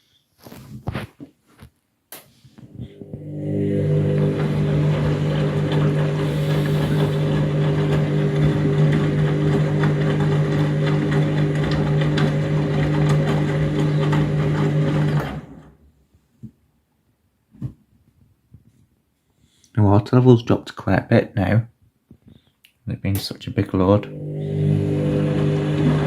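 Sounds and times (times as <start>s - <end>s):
washing machine spinning: 2.9s - 15.8s, 24.0s - 26.0s.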